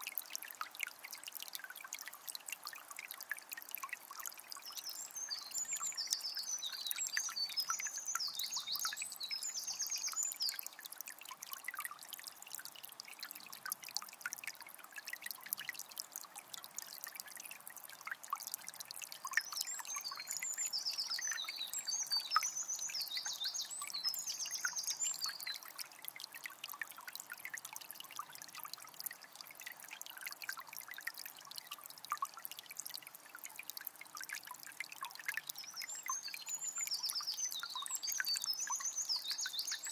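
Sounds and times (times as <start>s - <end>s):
river trickling over stones: 0.0s - 39.9s.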